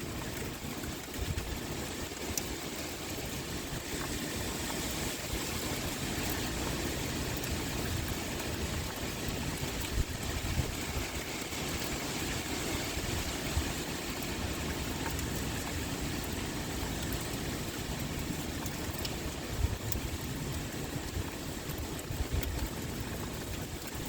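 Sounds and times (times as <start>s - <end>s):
louder rain patters: 0.0s - 24.0s
pouring rain: 0.0s - 24.0s
wind blowing: 2.6s - 16.8s.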